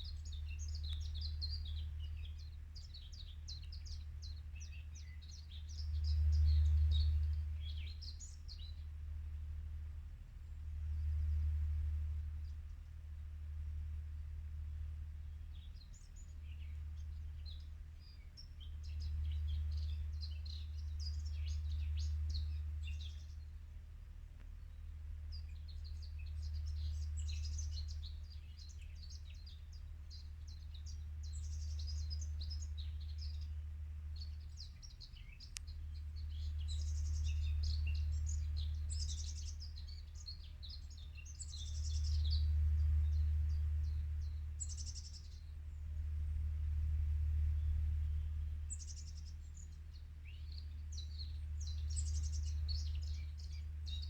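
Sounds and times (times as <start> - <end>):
low hum: 0.0 - 54.0
birds chirping: 25.3 - 45.8, 48.1 - 54.0.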